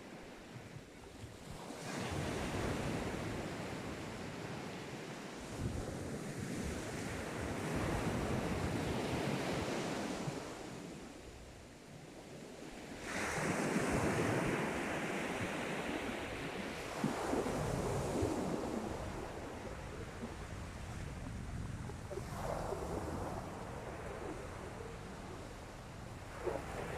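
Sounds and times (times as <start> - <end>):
sea waves breaking on shore: 12.2 - 26.9.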